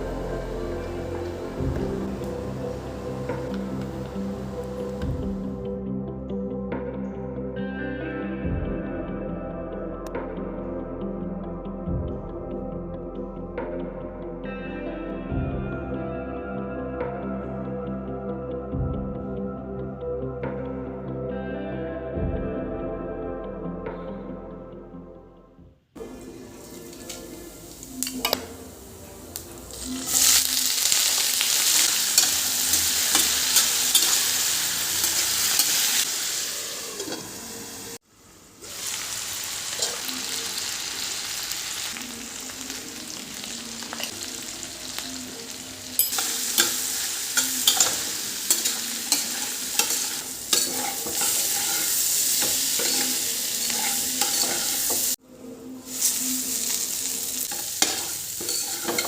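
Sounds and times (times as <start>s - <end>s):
food sizzling in a pan: 0.0s - 5.5s, 26.0s - 55.2s, 55.8s - 59.0s
spatula scraping a pan: 47.4s - 55.2s, 57.5s - 59.0s.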